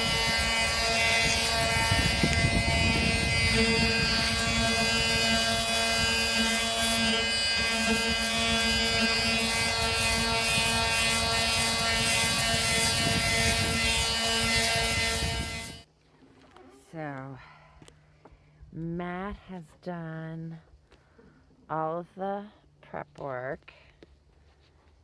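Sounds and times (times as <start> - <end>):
power tool grinding whine: 0.0 - 15.9.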